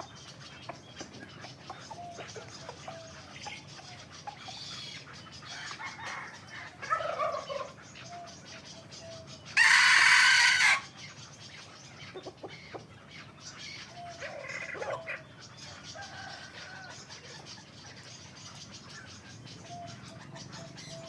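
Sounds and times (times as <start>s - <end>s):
cockerels calling: 0.0s - 21.0s
harsh rooster crow: 9.6s - 10.9s.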